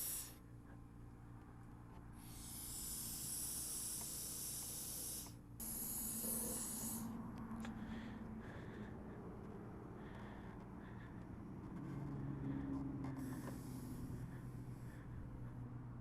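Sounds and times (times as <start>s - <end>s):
compressed air hissing from hose: 0.0s - 0.4s, 2.2s - 7.2s, 13.2s - 15.0s
steady low hum: 0.0s - 16.0s.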